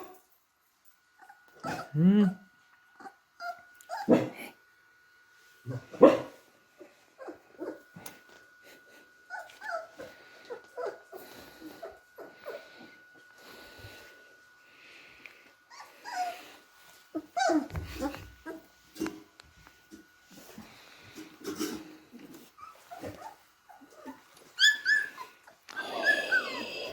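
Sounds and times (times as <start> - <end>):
puppies squeaking and whimpering: 9.3 - 13.0, 15.7 - 18.7, 22.5 - 26.9.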